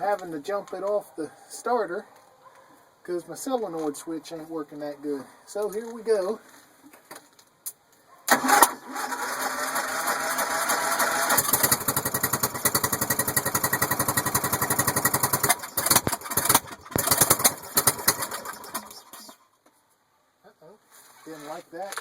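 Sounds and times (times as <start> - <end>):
mower engine sputtering: 8.3 - 19.3
mower engine cranking: 8.3 - 19.4.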